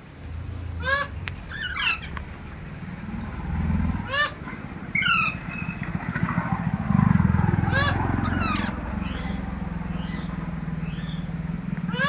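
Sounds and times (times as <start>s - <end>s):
low engine rumble: 0.0s - 12.0s
parrot harsh calls: 0.6s - 2.2s, 3.9s - 5.8s, 7.6s - 12.0s.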